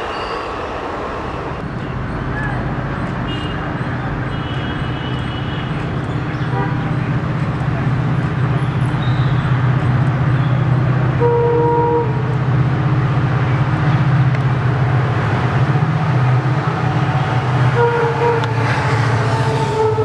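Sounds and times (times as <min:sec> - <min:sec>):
locomotive drone: 0:00.0 - 0:20.0
train horn toots: 0:06.5 - 0:07.0, 0:11.2 - 0:12.3, 0:17.6 - 0:20.0.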